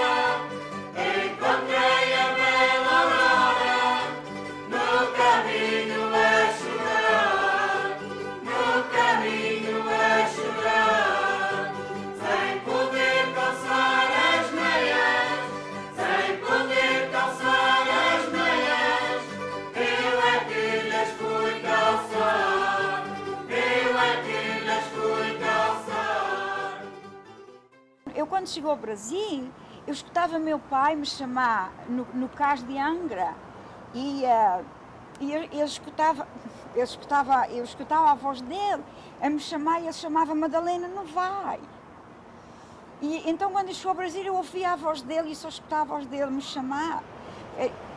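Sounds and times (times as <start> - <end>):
choir singing: 0.0 - 27.0.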